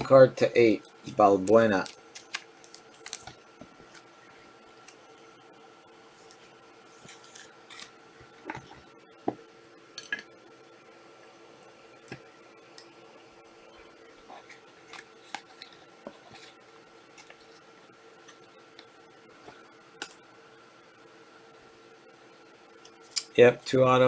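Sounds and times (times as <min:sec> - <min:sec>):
faint steady hum: 0:00.0 - 0:24.0
cards clicking and rustling: 0:01.0 - 0:04.1.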